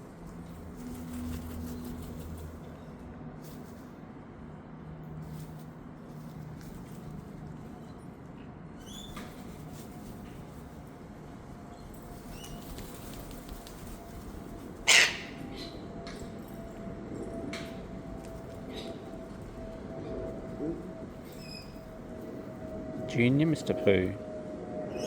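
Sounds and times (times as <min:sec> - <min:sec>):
cockatoo harsh squawk: 0:14.8 - 0:15.7
cockatoos chirping: 0:14.9 - 0:15.8.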